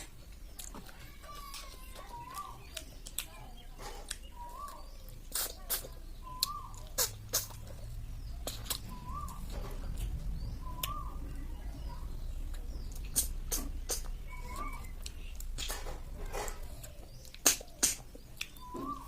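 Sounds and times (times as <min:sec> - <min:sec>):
bird chirping: 0:00.0 - 0:19.0
slurping and mouth clicks: 0:04.0 - 0:09.4, 0:12.5 - 0:15.7, 0:16.5 - 0:18.6.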